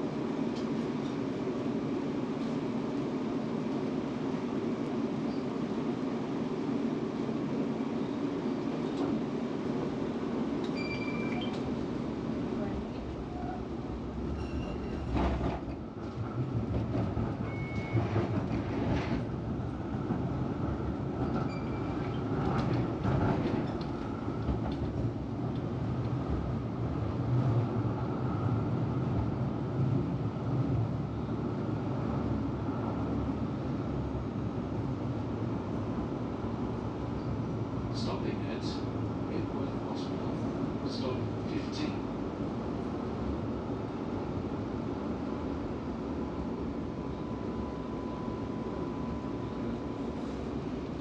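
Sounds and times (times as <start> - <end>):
tram wheels and motors rumbling: 0.0 - 51.0
wheels squealing on rails: 14.2 - 15.5, 17.4 - 18.6, 21.2 - 22.4.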